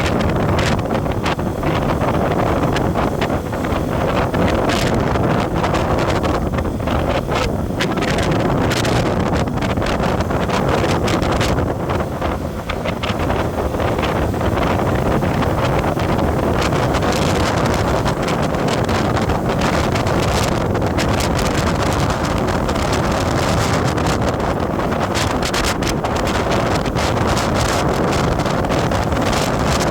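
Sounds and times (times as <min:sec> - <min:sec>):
road and engine noise: 0:00.0 - 0:29.9
wind buffeting microphone: 0:00.0 - 0:29.9.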